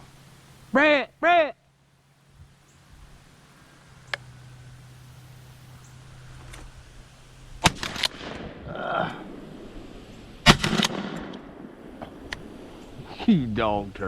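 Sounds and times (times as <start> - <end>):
steady low hum: 0.0 - 14.0
shotgun shots: 7.6 - 8.7, 10.4 - 12.7.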